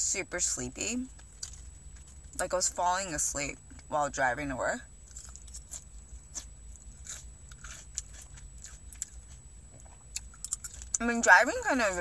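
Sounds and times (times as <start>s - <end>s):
salad chewing wet crackles: 1.0s - 2.6s, 5.0s - 11.7s.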